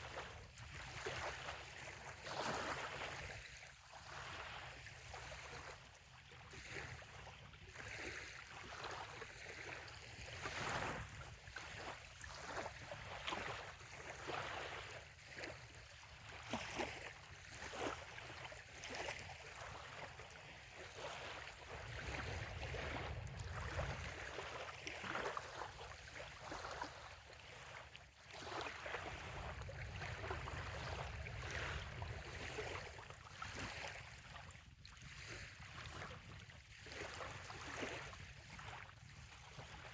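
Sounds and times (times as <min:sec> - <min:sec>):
waves lapping on shore: 0:00.0 - 0:39.9.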